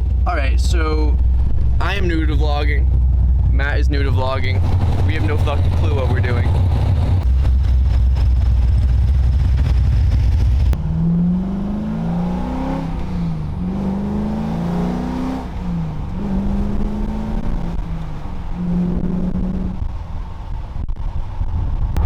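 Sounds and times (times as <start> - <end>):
car engine rumbling: 0.0 - 22.0
car accelerating through gears: 3.3 - 7.3, 10.7 - 20.0.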